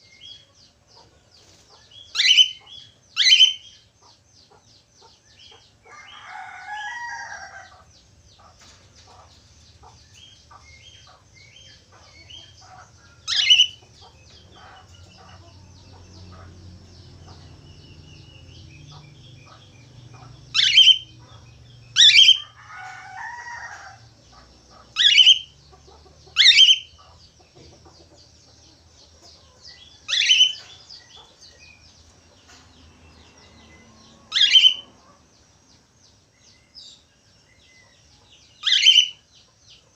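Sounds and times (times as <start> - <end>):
budgerigars chattering: 2.2 - 3.6, 9.1 - 22.4, 24.4 - 27.2, 30.1 - 31.3, 34.3 - 34.8, 38.6 - 39.2
downward sweeping bird calls: 33.7 - 35.2.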